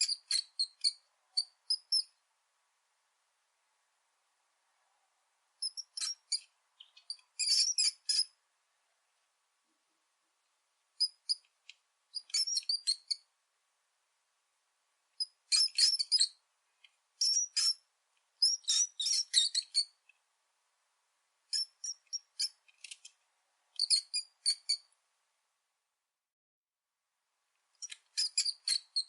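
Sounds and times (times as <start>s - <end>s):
rat squeaking: 0.0s - 2.2s, 5.6s - 8.4s, 11.0s - 11.5s, 12.1s - 13.3s, 15.2s - 16.4s, 17.2s - 20.0s, 21.5s - 23.1s, 23.8s - 24.9s, 27.8s - 29.0s.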